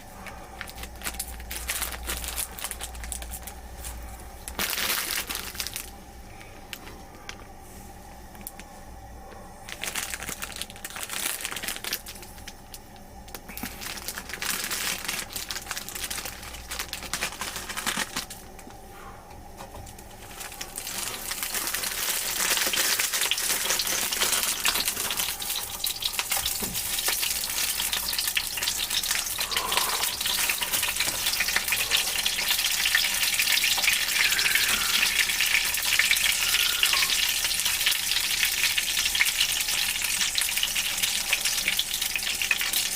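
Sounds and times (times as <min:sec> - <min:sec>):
crinkling and handling noises: 0:00.0 - 0:38.0
oil sizzling in a frying pan: 0:20.6 - 0:42.9.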